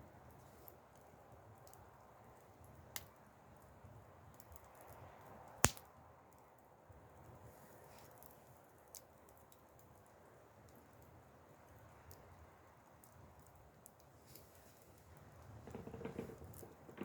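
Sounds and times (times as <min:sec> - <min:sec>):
wood fire crackling: 0:00.0 - 0:17.0
sharp pops from fire: 0:05.5 - 0:05.9.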